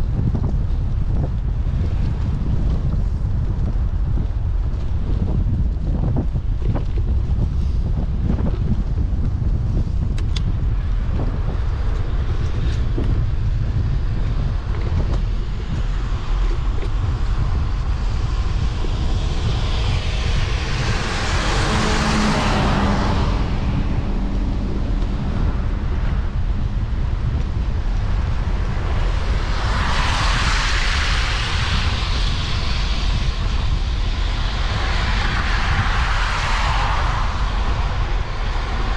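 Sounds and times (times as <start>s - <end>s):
wind rumble on microphone: 0.0s - 38.9s
motor vehicle passing: 13.9s - 38.9s.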